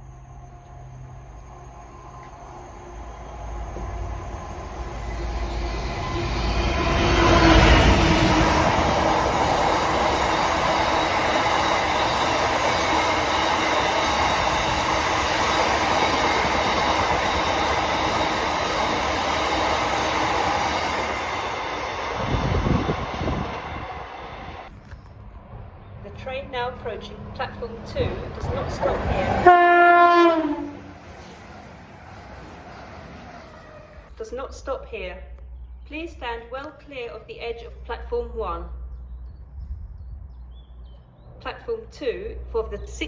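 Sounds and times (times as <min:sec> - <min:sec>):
train wheels running on track: 0:00.0 - 0:34.2.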